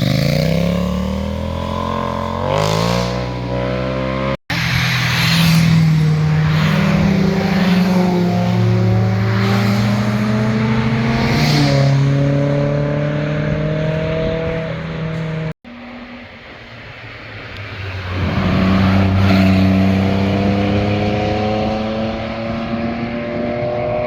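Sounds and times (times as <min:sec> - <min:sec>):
car engine accelerating hard: 0:05.7 - 0:15.6, 0:18.1 - 0:24.0.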